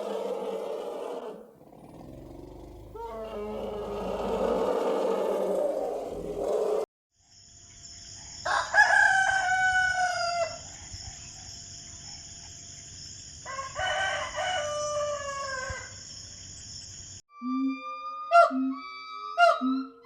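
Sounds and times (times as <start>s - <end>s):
rooster crowing: 8.5s - 10.6s, 13.5s - 15.9s.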